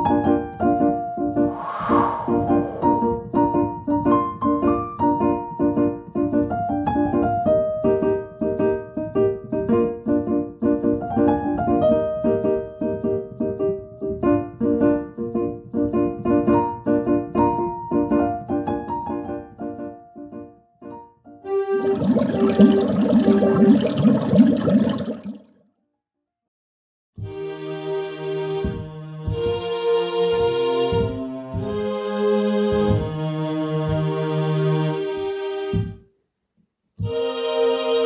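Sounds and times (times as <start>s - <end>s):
gentle piano music: 0.0s - 1.4s, 2.8s - 22.3s, 30.2s - 31.9s.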